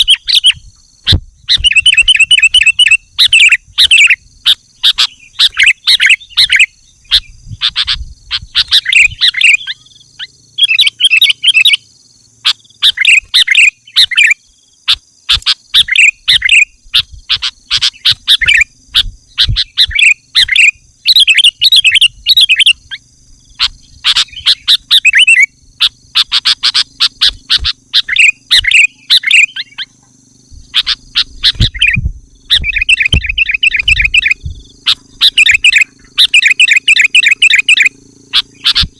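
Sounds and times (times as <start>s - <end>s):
bird chattering song: 0.0s - 38.9s.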